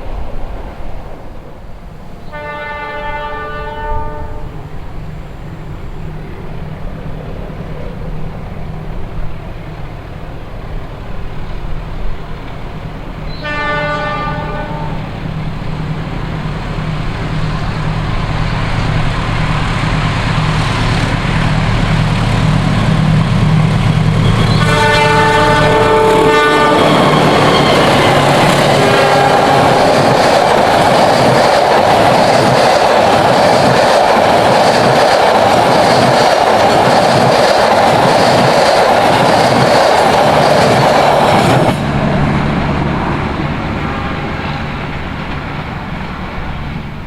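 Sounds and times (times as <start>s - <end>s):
diesel locomotive engine: 0.0s - 47.0s
train horn blasts: 2.2s - 4.6s, 13.3s - 15.1s, 24.1s - 30.0s.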